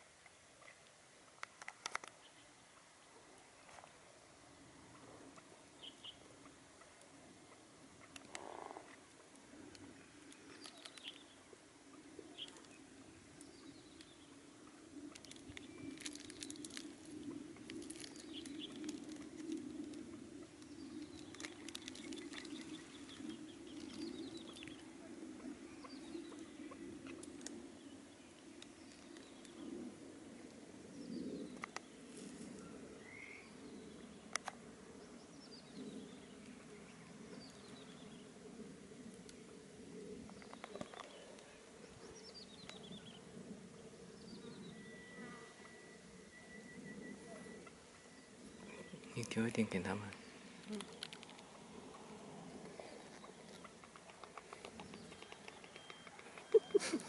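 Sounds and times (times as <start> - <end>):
low steady hum: 0.0 - 57.0
faint bird chirps: 30.9 - 34.4, 43.9 - 57.0.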